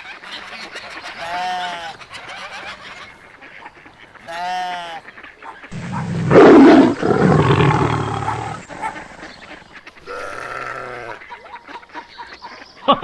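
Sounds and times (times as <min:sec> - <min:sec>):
steady animal call: 0:00.2 - 0:12.4
rough animal roar: 0:04.3 - 0:09.3.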